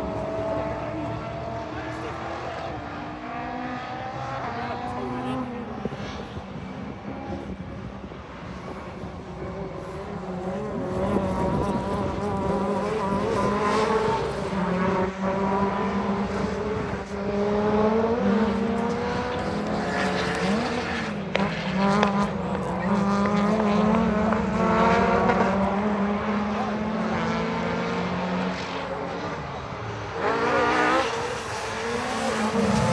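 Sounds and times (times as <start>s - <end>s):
race car engines revving: 0.0s - 32.9s.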